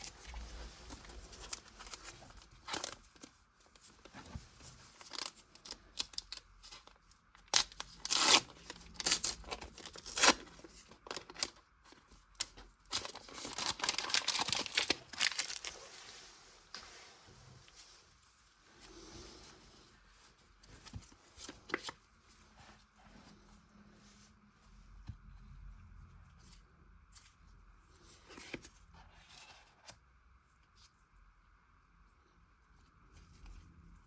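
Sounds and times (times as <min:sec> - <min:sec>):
wrapper crinkling: 0:05.0 - 0:15.9
card packets ripping open: 0:07.5 - 0:11.5, 0:12.9 - 0:15.7.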